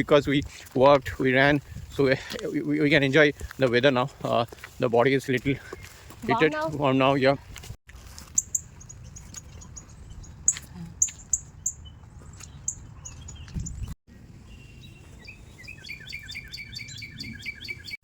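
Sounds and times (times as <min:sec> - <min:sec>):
short high bird chirps: 0:14.5 - 0:18.0.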